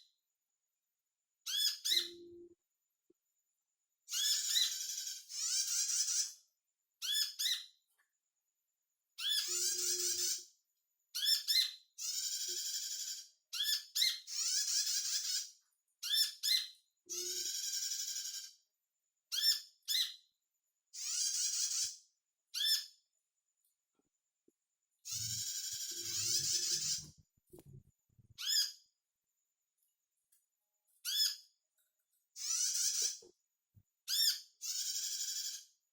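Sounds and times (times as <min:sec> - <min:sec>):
sunbird buzzy chattering song: 0:25.1 - 0:27.2.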